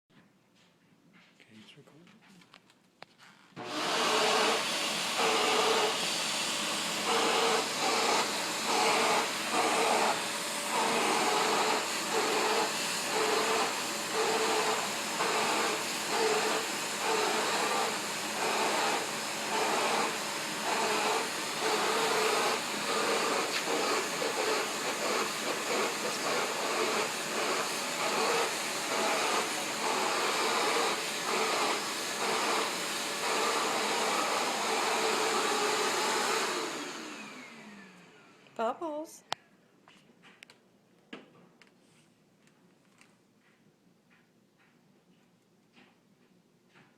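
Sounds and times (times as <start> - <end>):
vacuum cleaner running: 3.6 - 38.6.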